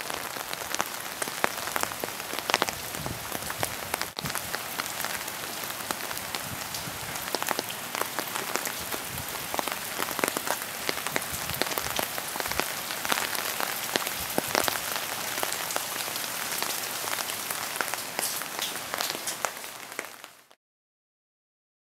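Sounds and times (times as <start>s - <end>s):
rain hissing: 0.0s - 20.5s
raindrops ticking: 3.4s - 20.2s.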